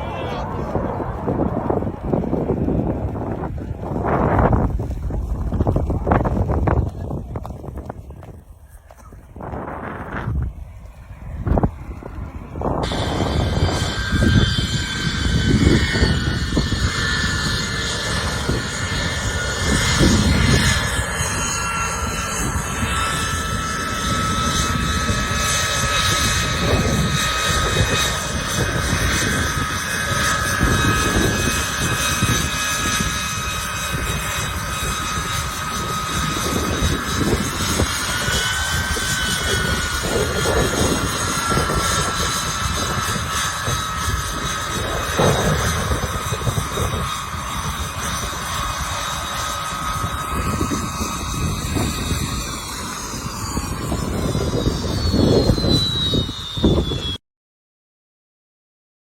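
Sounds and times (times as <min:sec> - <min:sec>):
turbine aircraft engines whining: 0:00.0 - 0:57.2
wind buffeting microphone: 0:00.0 - 0:57.2.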